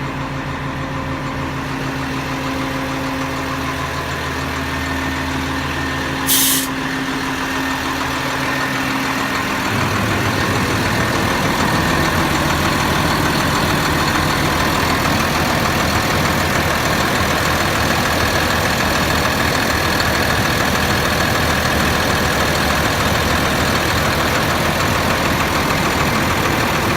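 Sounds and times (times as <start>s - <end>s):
diesel truck engine idling: 0.0s - 26.9s
air hiss: 6.3s - 6.8s.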